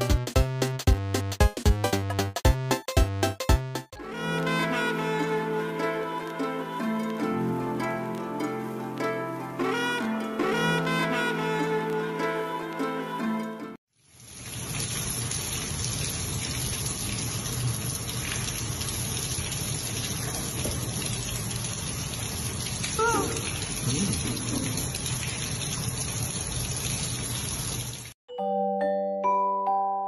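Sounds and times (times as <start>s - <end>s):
running water rushing: 14.2s - 28.2s
brief pitched cry: 23.0s - 24.0s.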